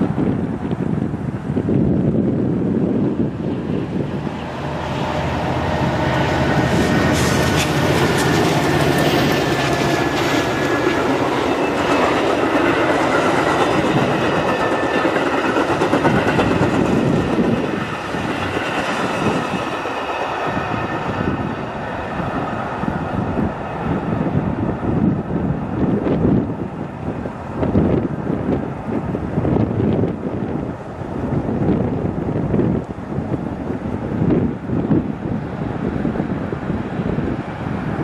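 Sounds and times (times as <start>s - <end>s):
diesel locomotive engine drone: 0.0s - 38.0s
train wheels clattering on rails: 4.4s - 24.3s.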